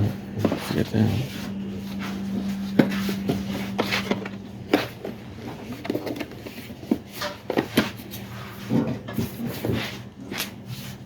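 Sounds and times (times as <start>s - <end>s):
low steady hum: 0.0s - 11.0s
objects knocking and clicking: 2.7s - 8.1s.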